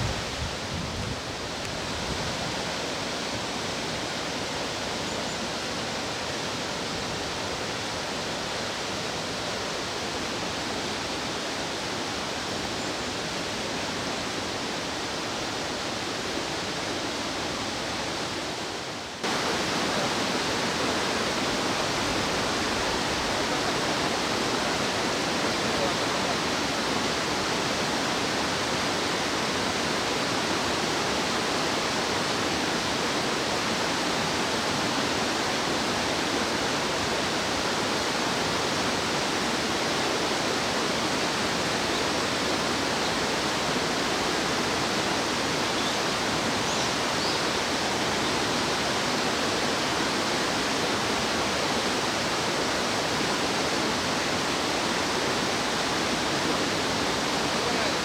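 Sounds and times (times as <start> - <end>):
stream water rushing: 0.0 - 58.0
faint high chirp: 46.7 - 47.5.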